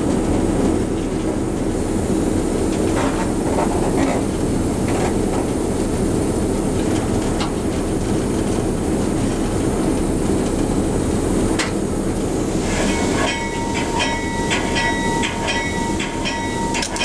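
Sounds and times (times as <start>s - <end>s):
train rumbling on rails: 0.0s - 17.0s
wheels clicking over rail joints: 13.2s - 17.0s.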